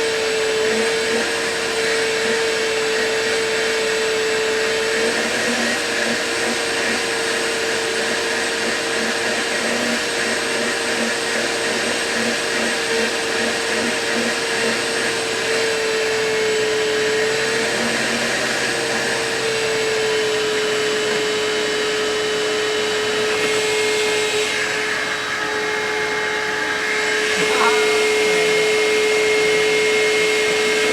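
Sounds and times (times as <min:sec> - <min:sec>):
vacuum cleaner running: 0:00.0 - 0:30.9.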